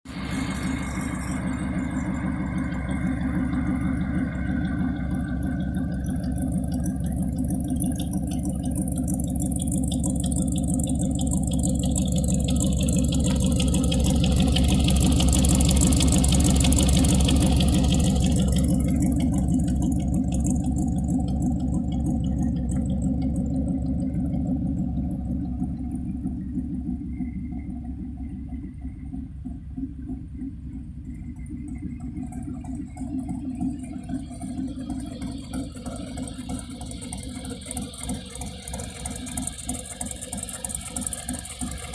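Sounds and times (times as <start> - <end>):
truck engine running: 0.0 - 41.9.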